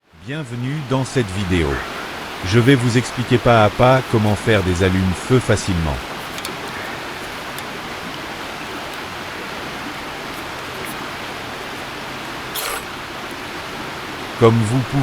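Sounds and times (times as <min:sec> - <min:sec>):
steady background hiss: 0:00.0 - 0:15.0
faint clicks: 0:05.5 - 0:09.2.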